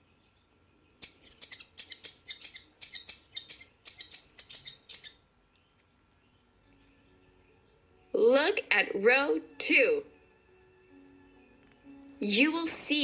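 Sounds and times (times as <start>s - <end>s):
scissors snipping: 1.0s - 5.2s.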